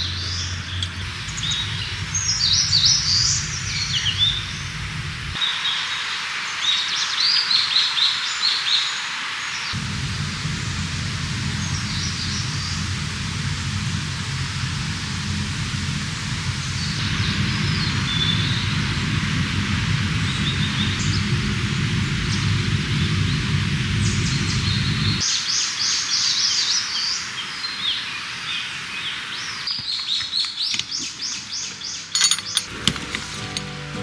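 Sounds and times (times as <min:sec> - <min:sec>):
low steady rush: 0:00.0 - 0:05.4, 0:09.7 - 0:25.2
songbirds chirping: 0:00.0 - 0:09.8, 0:20.3 - 0:34.0.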